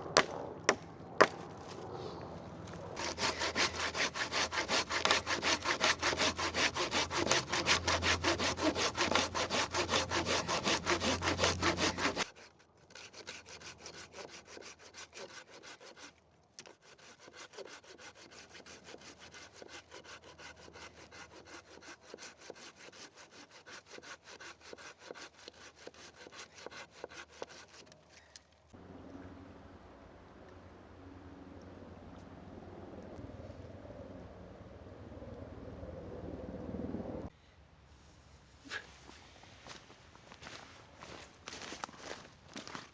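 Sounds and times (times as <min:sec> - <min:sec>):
hand saw cutting wood: 0:02.7 - 0:28.1.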